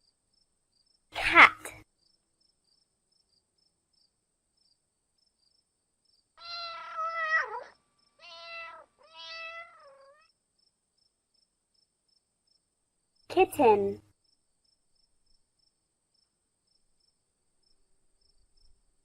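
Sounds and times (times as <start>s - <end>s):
cat meowing: 6.4s - 10.3s.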